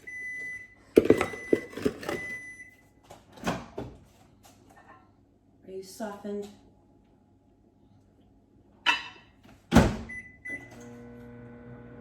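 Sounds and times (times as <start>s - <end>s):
microwave oven beeping: 0.0s - 2.8s, 10.0s - 12.0s.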